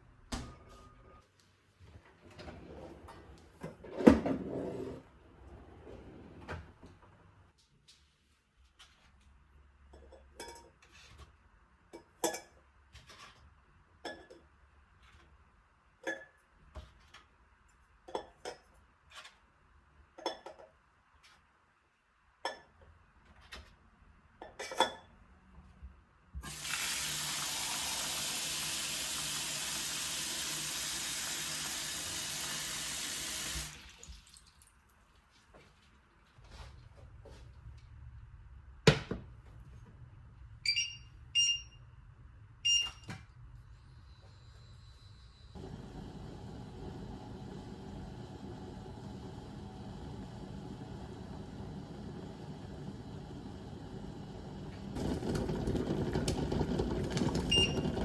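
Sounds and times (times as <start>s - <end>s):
dishes and utensils clinking: 10.0s - 10.9s
kitchen tap running: 26.4s - 34.8s, 45.6s - 58.0s.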